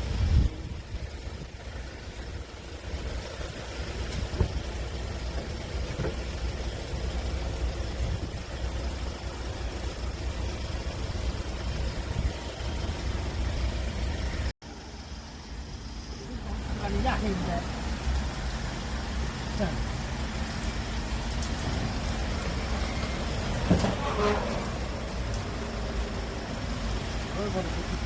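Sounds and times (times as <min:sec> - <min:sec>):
engine idling: 0:00.0 - 0:28.0.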